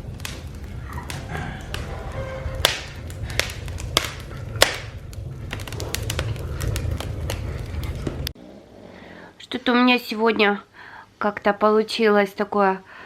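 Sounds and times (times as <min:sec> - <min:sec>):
wood fire crackling and popping: 0:00.0 - 0:08.4.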